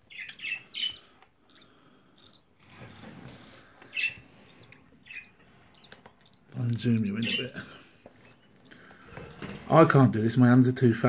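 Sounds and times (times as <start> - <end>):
chicks chirping: 0.0 - 9.8.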